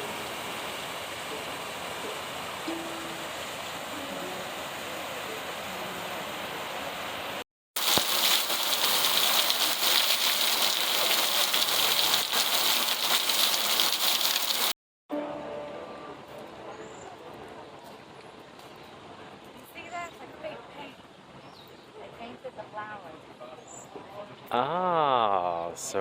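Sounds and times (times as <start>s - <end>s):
falling water hissing: 7.8s - 14.8s.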